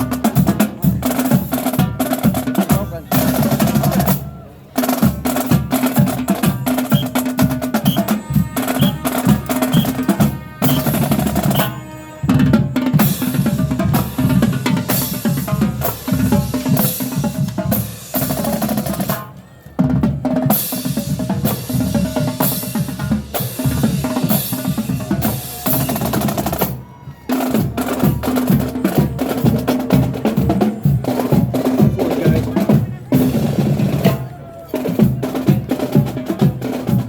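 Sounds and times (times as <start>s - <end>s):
snare drum rolls and rim shots: 4.8s - 11.8s
bass drum beats: 5.5s - 11.8s.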